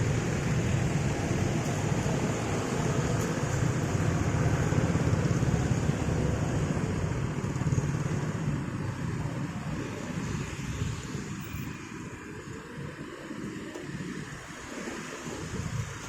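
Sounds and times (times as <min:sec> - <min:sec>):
vehicles passing rumble: 0:00.0 - 0:16.0.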